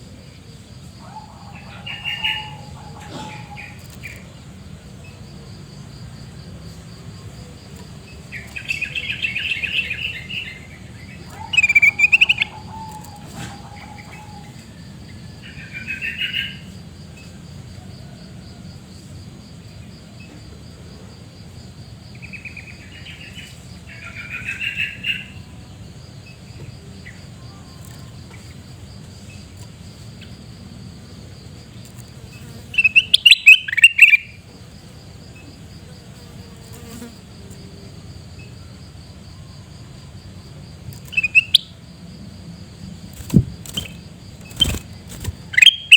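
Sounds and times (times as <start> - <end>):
high insect drone: 0.0 - 45.9
bird chattering calls: 8.4 - 14.5, 32.8 - 34.4, 43.3 - 45.9.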